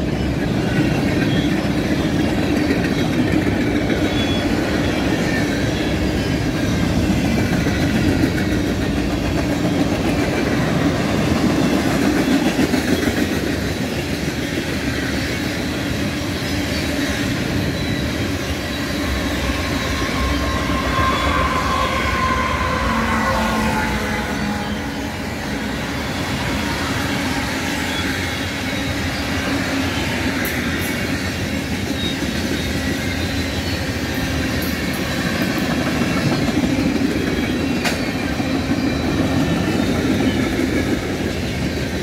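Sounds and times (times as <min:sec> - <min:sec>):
wheels clicking over rail joints: 0:00.0 - 0:16.0, 0:34.2 - 0:42.0
diesel locomotive engine tone: 0:00.0 - 0:42.0
freight train rumbling past: 0:00.0 - 0:42.0.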